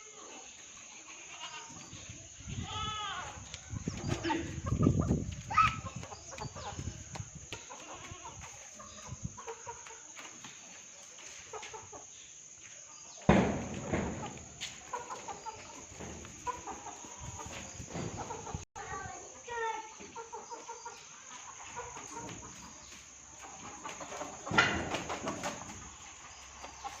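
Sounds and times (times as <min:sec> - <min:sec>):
chickens clucking: 0:03.3 - 0:27.0.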